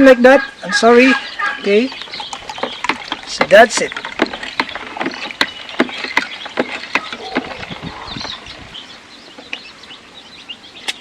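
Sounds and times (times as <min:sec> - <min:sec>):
faint chicken clucks: 0:00.0 - 0:02.6.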